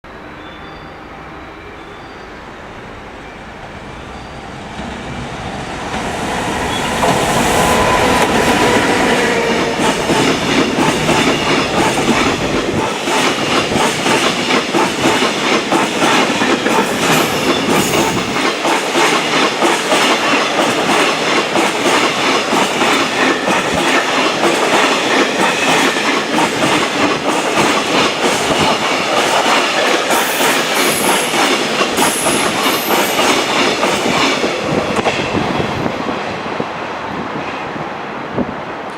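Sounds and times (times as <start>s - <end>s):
freight train passing: 0.0s - 38.9s.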